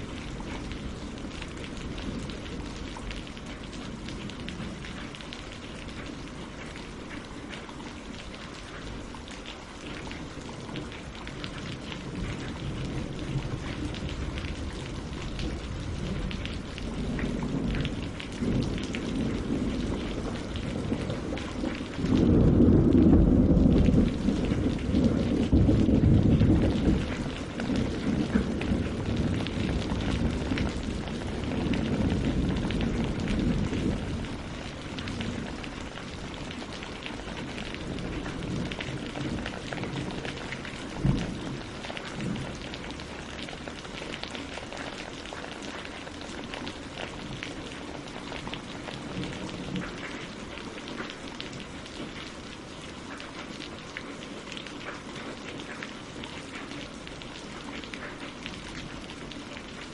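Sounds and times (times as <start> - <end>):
raindrops ticking: 0.0 - 59.9
steady rain: 0.0 - 59.9
thunder rumble: 11.8 - 43.9.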